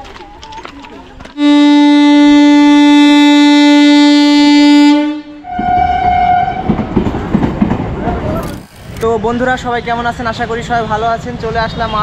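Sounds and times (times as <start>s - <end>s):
rushing rumbling train noise: 0.1s - 12.0s
train horn blast: 1.4s - 6.8s.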